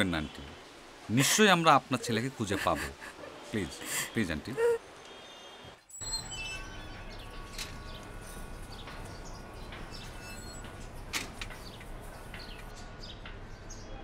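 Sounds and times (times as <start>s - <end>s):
small birds chirping: 6.0s - 14.0s.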